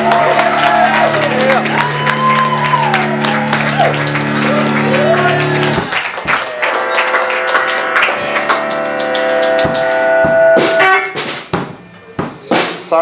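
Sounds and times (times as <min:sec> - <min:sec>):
electric guitar chords: 0:00.0 - 0:12.3
drum hits: 0:05.5 - 0:06.6, 0:07.6 - 0:13.0.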